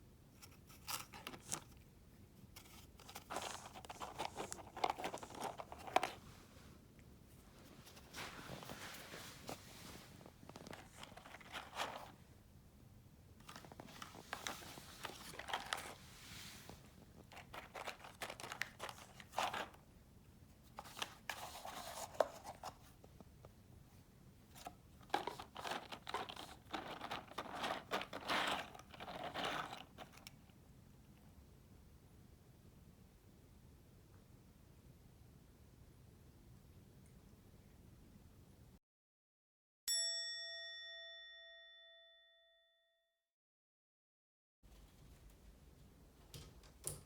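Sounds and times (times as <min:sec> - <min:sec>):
crinkling and rustling: 0:00.3 - 0:12.4, 0:13.3 - 0:19.9, 0:20.5 - 0:31.3.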